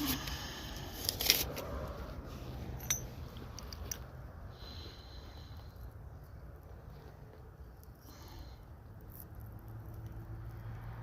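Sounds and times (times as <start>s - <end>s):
low steady rumble: 0.0s - 11.0s
metallic clinks of tools: 2.8s - 4.0s.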